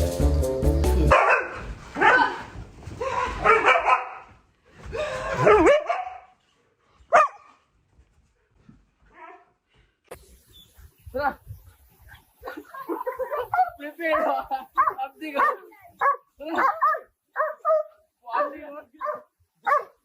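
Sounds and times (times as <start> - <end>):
dog barking: 1.1 - 2.4, 3.4 - 4.3, 5.4 - 6.4, 7.1 - 7.5, 13.2 - 20.0.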